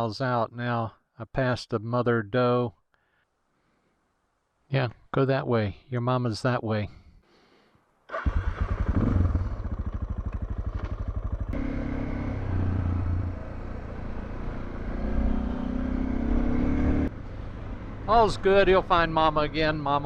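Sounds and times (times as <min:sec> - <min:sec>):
motorcycle engine running: 0:08.2 - 0:19.0.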